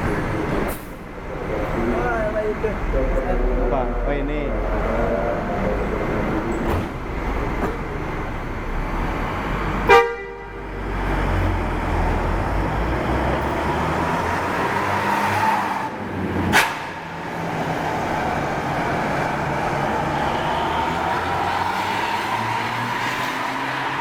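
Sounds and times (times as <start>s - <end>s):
bus engine and road noise: 0.0s - 24.0s
vehicle horn toot: 9.8s - 10.7s.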